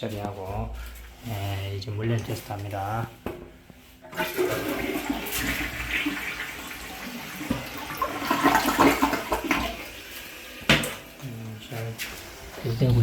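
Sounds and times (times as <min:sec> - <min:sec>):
toilet flushing: 0:04.0 - 0:13.0.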